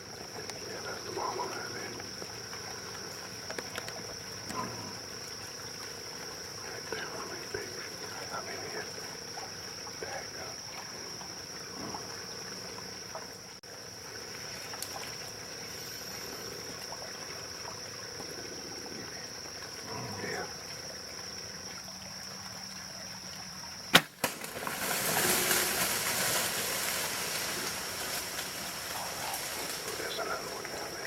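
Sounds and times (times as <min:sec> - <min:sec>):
insects droning: 0:00.0 - 0:31.0
bow shot snap: 0:23.9 - 0:24.8
deer rustling through brush: 0:23.9 - 0:30.2.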